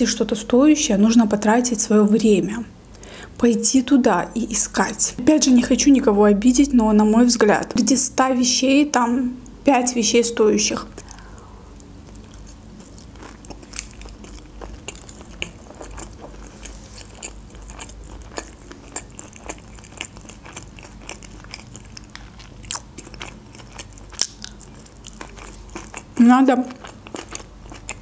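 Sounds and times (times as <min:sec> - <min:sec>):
chewing with wet crunches: 0:10.9 - 0:28.0.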